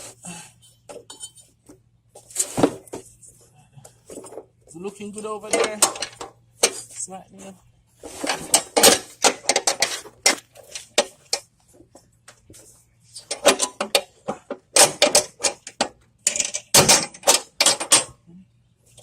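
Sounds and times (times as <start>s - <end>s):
metal tools and parts clanking: 0.9s - 1.6s, 5.4s - 7.0s, 8.1s - 11.5s, 13.2s - 18.2s.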